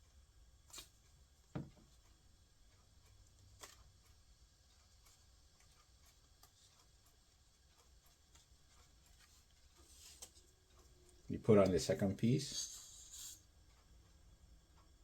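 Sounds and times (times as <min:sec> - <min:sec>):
soft knock on table: 0:01.5 - 0:01.8.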